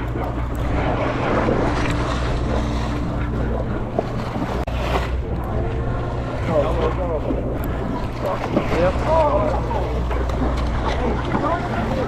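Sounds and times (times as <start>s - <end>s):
boat engine humming: 0.0s - 12.0s
sea washing around hull: 0.0s - 12.0s.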